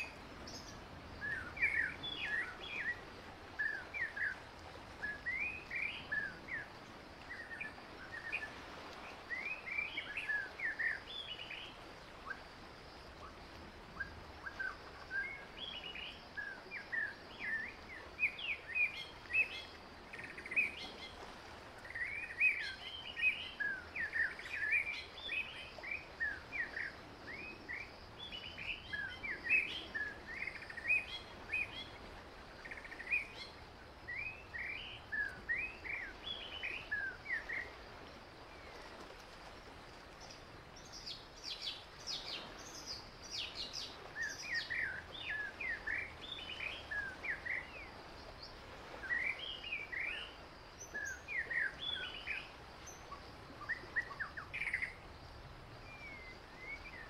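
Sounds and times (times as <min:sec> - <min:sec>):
faint outdoor hiss: 0:00.0 - 0:57.0
wild birds chirping: 0:21.8 - 0:57.0.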